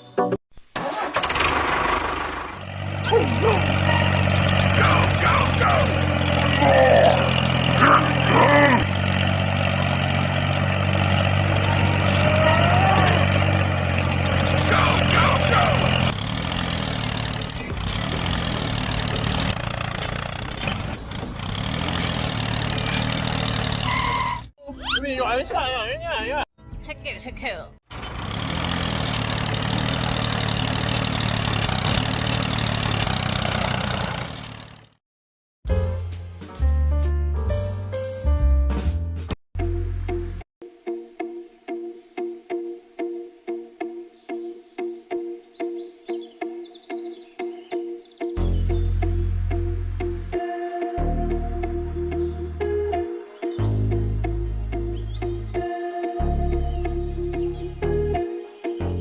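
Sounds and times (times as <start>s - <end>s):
small tractor engine running: 0.8s - 24.4s, 27.9s - 35.0s.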